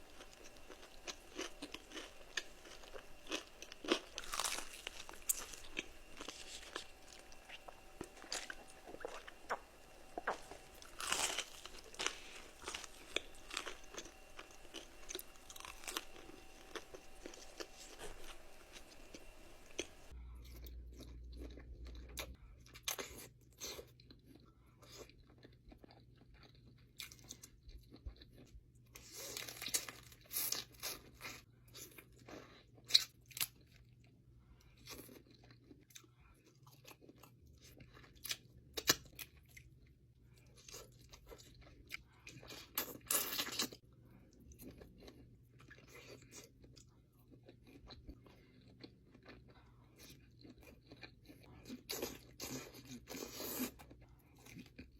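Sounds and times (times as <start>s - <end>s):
faint low hum: 0.0s - 54.9s
person chewing crunchy food: 0.0s - 54.9s.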